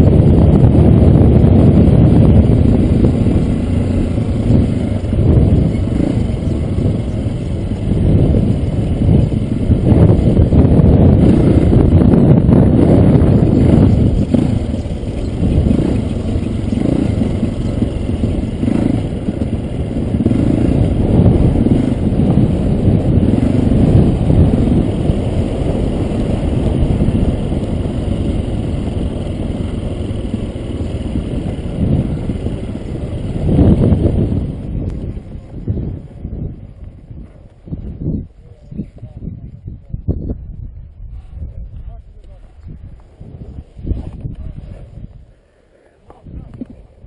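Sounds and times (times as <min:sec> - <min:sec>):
dirt bike engine revving: 0:00.0 - 0:35.1.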